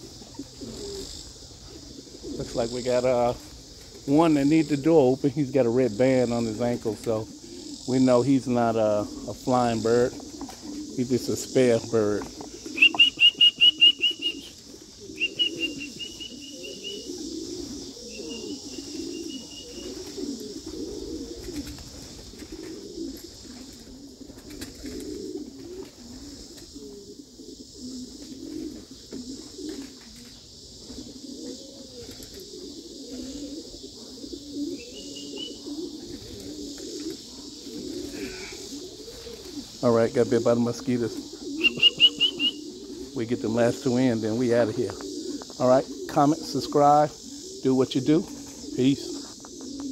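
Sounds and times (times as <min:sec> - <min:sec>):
pigeons cooing: 0:00.0 - 0:49.9
rapid high chirping: 0:12.5 - 0:20.0, 0:39.9 - 0:44.9.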